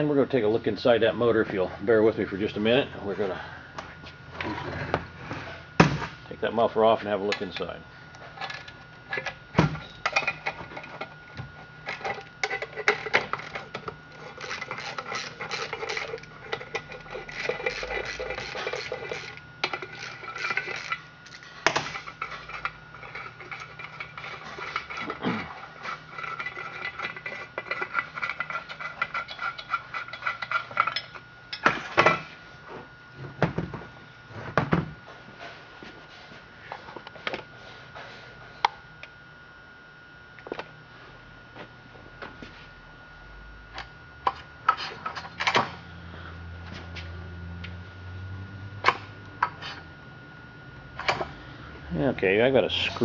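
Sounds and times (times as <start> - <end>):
metal tools clinking and scraping: 11.9 - 31.7.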